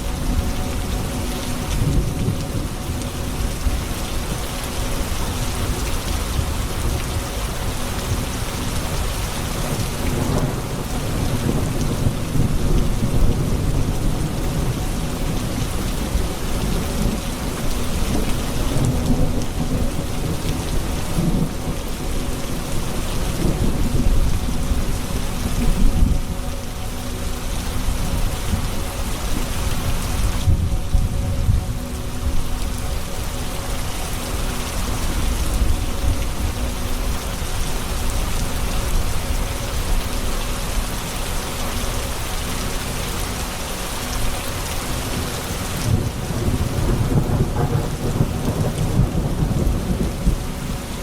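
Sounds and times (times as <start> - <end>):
heavy rain: 0.0 - 51.0
rolling thunder: 45.9 - 50.6.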